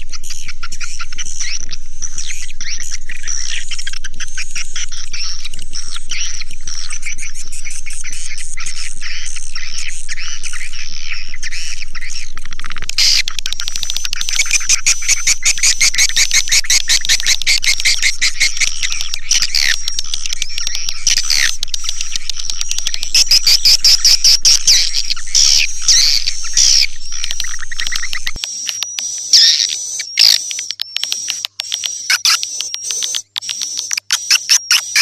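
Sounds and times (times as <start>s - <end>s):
swiftlets twittering: 0.0s - 35.0s.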